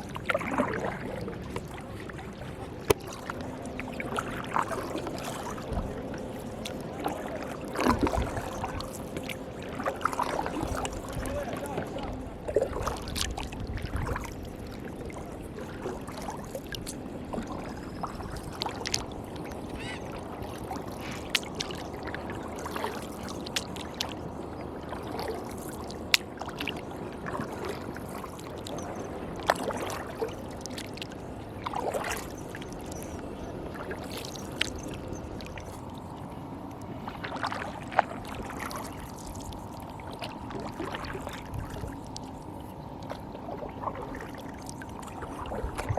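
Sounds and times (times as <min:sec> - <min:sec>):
paddle strokes in water: 0:00.0 - 0:45.9.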